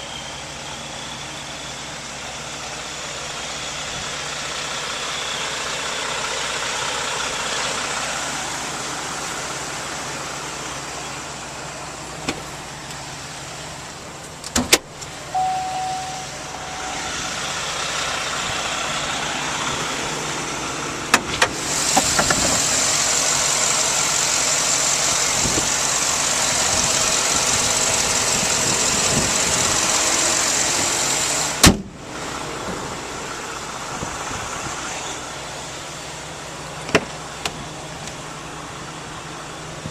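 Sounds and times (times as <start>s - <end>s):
vehicle engine running: 0.0s - 39.9s
loud steady rush: 15.2s - 23.2s
brief tone: 15.3s - 17.5s.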